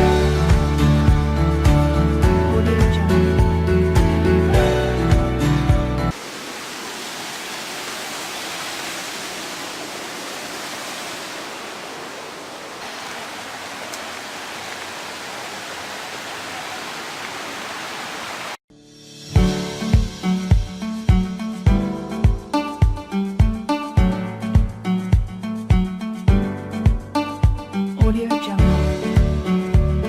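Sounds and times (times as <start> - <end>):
river water rushing: 6.1 - 18.6.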